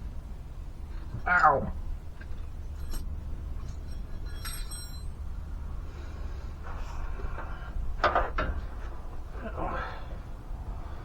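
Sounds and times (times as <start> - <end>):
metallic clink: 2.8 - 5.2.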